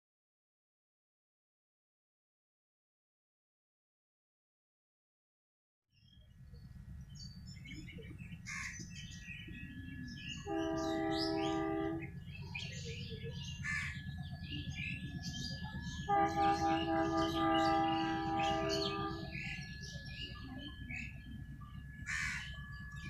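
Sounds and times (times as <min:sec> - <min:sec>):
birds chirping: 0:06.0 - 0:23.0
diesel locomotive engine rumbling: 0:06.0 - 0:23.0
multi-tone locomotive horn blasts: 0:10.3 - 0:12.6, 0:15.9 - 0:20.1.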